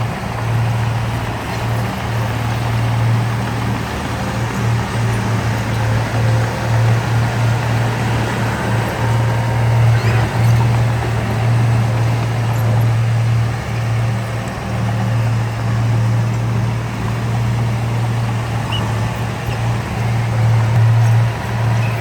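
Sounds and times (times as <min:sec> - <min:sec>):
heavy diesel engine humming: 0:00.0 - 0:22.0.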